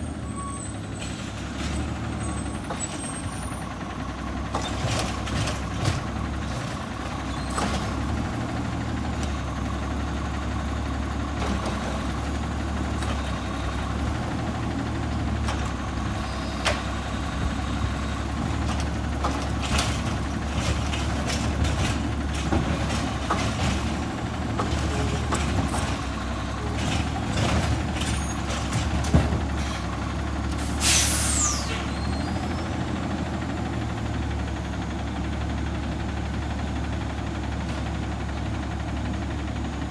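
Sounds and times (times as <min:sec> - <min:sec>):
garbage truck diesel engine: 0:00.0 - 0:39.9
clanks and knocks of bins: 0:04.4 - 0:08.3, 0:15.3 - 0:17.6, 0:18.2 - 0:30.7
air brake hiss: 0:30.6 - 0:32.1.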